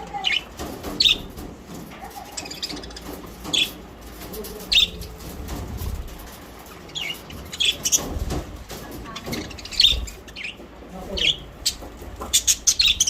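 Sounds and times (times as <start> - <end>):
budgerigars chirping: 0.2 - 1.4, 6.9 - 8.3, 9.0 - 13.0.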